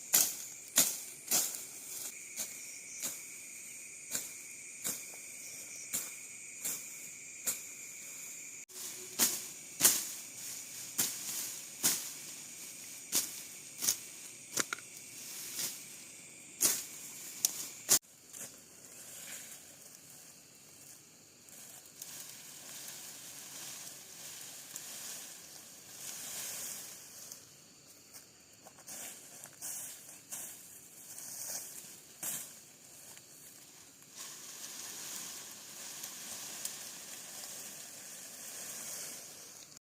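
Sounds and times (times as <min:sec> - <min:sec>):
crackling and rustling: 0:31.2 - 0:39.8.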